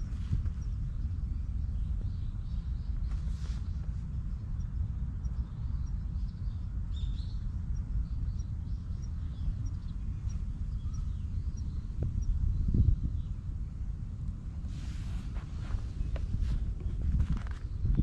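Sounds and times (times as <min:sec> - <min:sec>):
small birds chirping: 0:00.0 - 0:13.5
wind rumble on microphone: 0:00.0 - 0:18.0.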